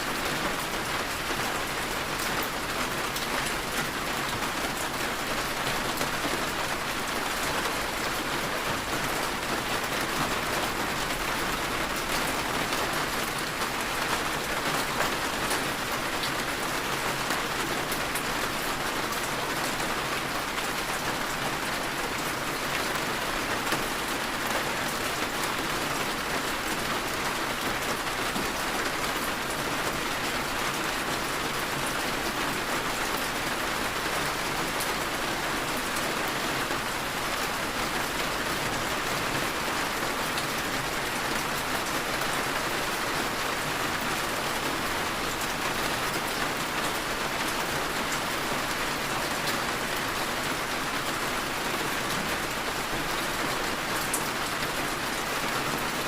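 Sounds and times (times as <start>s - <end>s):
heavy rain pattering: 0.0s - 56.0s.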